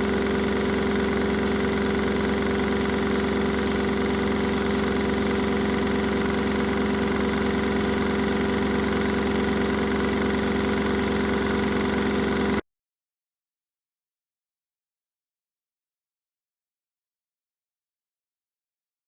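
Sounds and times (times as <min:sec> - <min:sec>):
washing machine hum: 0:00.0 - 0:12.6.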